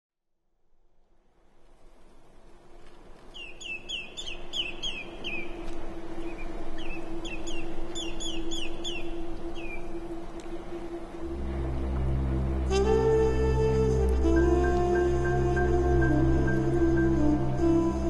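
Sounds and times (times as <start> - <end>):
steady low hum: 4.4 - 18.0
bird calling downward notes: 12.7 - 18.0.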